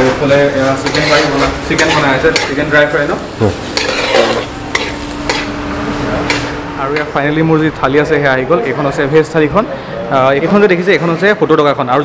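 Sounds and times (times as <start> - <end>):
metal spatula scraping pan: 0.0 - 2.8, 3.5 - 5.6
chicken sizzling in oil: 0.0 - 6.8
steady hum: 1.5 - 10.4.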